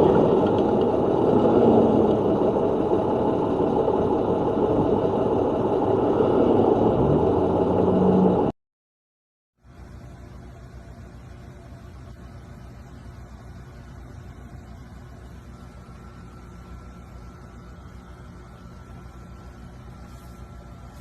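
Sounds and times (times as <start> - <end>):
road noise: 0.0 - 8.5
car engine revving: 5.8 - 8.5.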